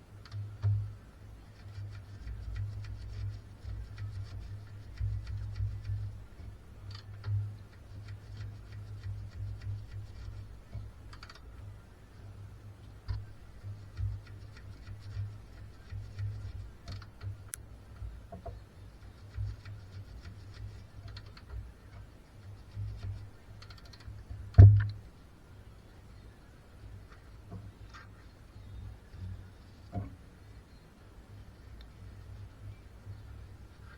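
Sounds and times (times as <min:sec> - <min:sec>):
light clicks and taps: 0:00.0 - 0:11.8, 0:12.8 - 0:25.0
steady low hum: 0:00.0 - 0:33.9.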